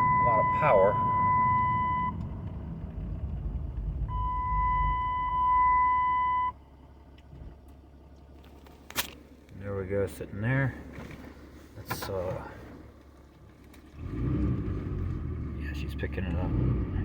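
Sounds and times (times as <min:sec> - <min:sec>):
electronic beep tone: 0:00.0 - 0:02.2, 0:04.1 - 0:06.5
diesel engine and road rumble: 0:00.0 - 0:17.0.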